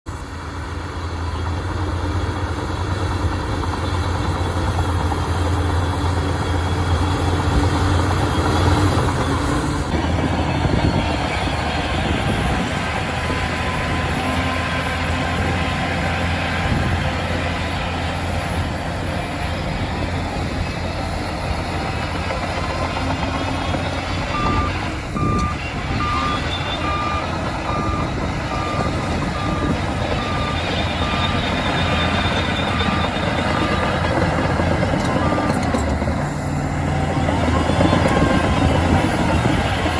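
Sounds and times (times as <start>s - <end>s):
bulldozer diesel engine running hard: 0.1s - 39.9s
reversing alarm beeping: 5.4s - 16.0s, 19.9s - 36.1s, 37.1s - 39.6s.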